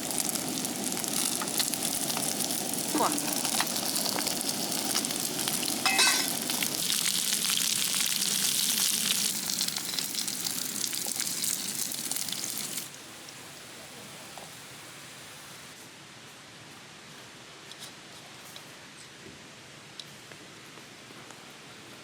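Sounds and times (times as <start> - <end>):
dumplings sizzling in oil: 0.0 - 15.8.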